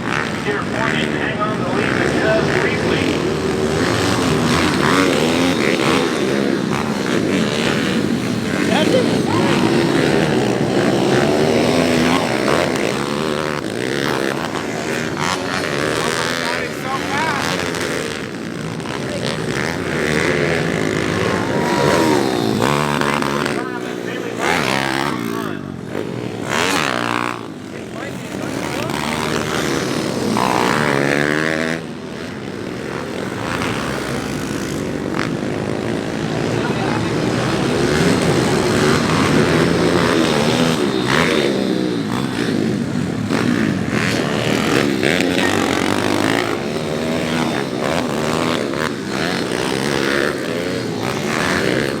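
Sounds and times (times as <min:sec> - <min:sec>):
dirt bike engines revving: 0:00.0 - 0:52.0.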